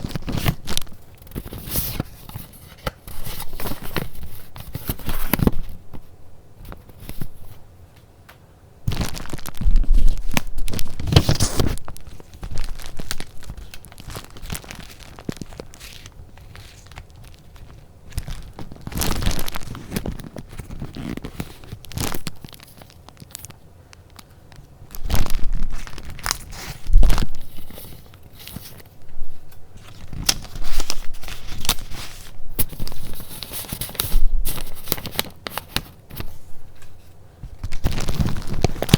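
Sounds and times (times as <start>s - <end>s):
paper rustling and tearing: 0.0s - 5.8s, 8.9s - 23.6s, 24.9s - 38.9s.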